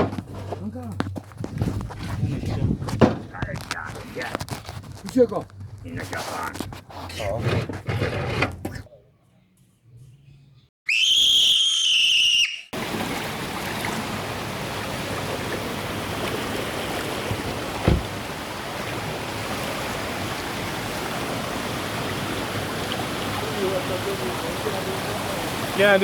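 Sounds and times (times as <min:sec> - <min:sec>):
running water: 0:12.8 - 0:26.0
knock: 0:17.8 - 0:18.1.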